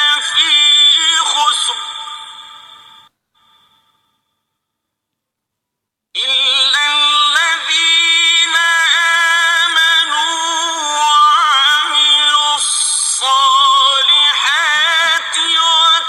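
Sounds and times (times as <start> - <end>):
man chanting recitation: 0.0 - 2.8, 6.2 - 16.0.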